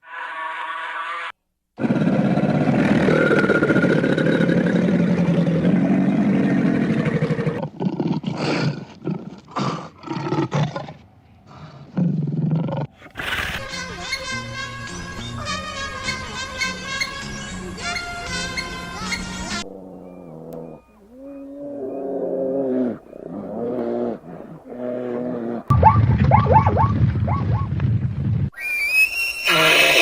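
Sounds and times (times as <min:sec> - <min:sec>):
big cat roaring: 0:01.8 - 0:11.0, 0:19.6 - 0:25.7.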